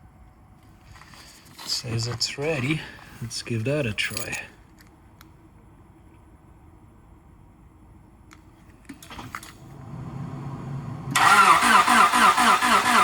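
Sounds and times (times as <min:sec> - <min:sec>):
car engine starting and running: 0:09.2 - 0:13.0.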